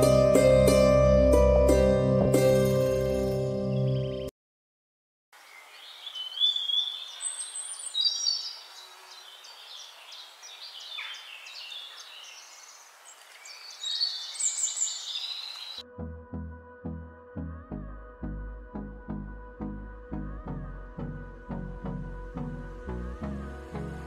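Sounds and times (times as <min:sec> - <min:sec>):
birds chirping and twittering: 0:05.4 - 0:15.8.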